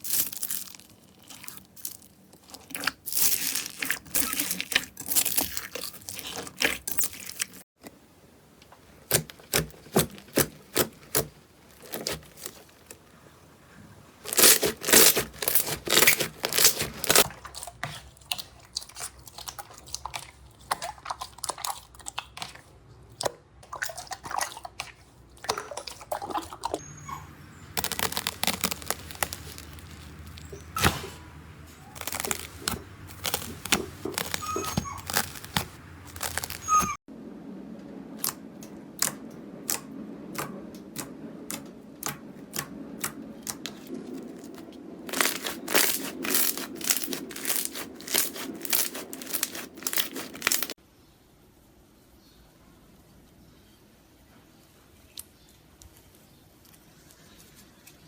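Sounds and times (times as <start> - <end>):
slime crackling and popping: 0.0 - 7.6, 9.1 - 13.0, 14.2 - 17.3, 27.8 - 31.1, 31.9 - 37.0, 45.0 - 50.8.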